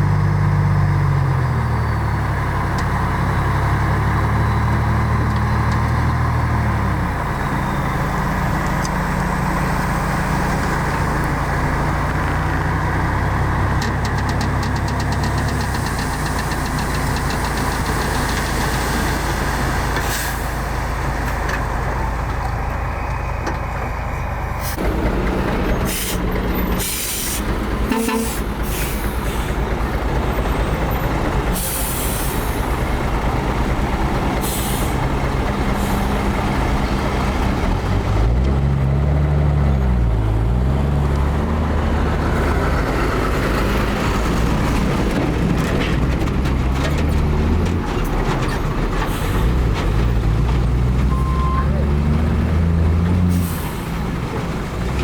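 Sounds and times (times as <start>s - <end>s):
diesel truck engine running: 0.0s - 55.0s
air brake hisses: 25.9s - 29.6s, 31.6s - 32.6s, 34.4s - 35.0s.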